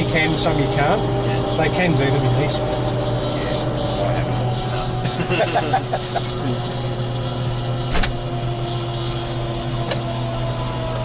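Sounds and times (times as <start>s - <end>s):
helicopter engine and rotor: 0.0s - 11.0s.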